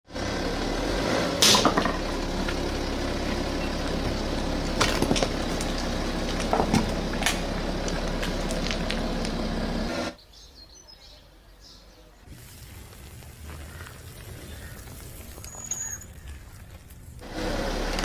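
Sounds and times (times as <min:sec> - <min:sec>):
car engine running: 0:00.1 - 0:10.2, 0:17.1 - 0:18.0.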